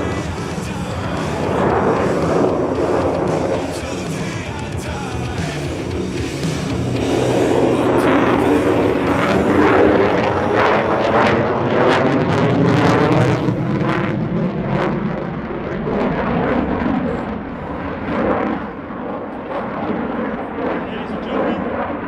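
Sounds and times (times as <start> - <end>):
fighter jet passing overhead: 0.0 - 4.6, 5.6 - 22.0
jet noise with ragged crackle: 0.0 - 4.8, 5.4 - 22.0.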